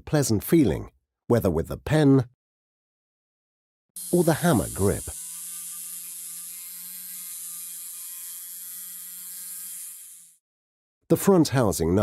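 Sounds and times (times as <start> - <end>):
small motor whirring: 4.0 - 10.4.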